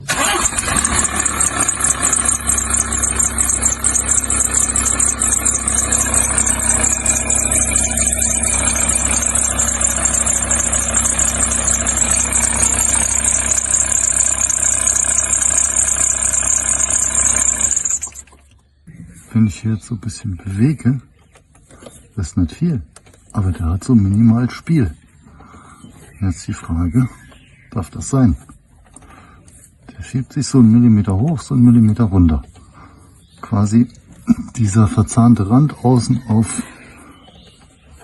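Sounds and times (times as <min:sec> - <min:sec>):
diesel engine idling: 0:00.0 - 0:18.5
high-pitched pulley squeak: 0:00.1 - 0:18.4.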